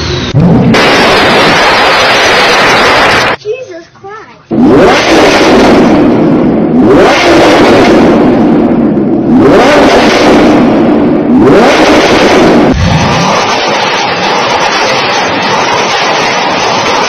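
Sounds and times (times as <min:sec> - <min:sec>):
car engine revving hard: 0:00.0 - 0:03.4, 0:04.5 - 0:17.0
steady lower car engine: 0:04.5 - 0:17.0.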